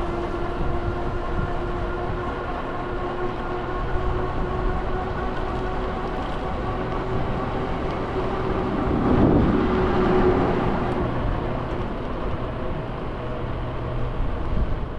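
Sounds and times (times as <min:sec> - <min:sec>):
road noise from scooter: 0:00.0 - 0:14.9
vehicle passing close by: 0:04.0 - 0:12.6.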